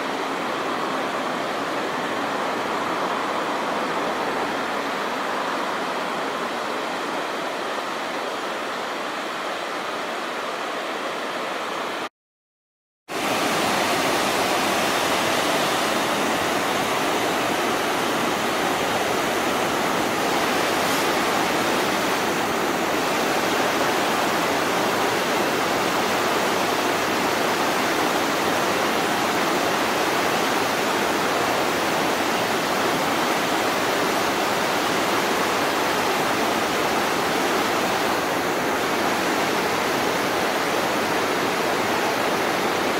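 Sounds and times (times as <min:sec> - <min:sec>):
flowing river water: 0:00.0 - 0:12.1, 0:13.1 - 0:42.9.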